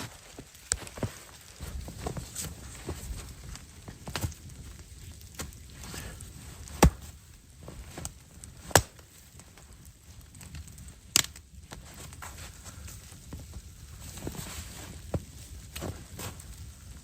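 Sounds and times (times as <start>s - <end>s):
wood being chopped: 6.8s - 7.2s, 8.7s - 9.0s.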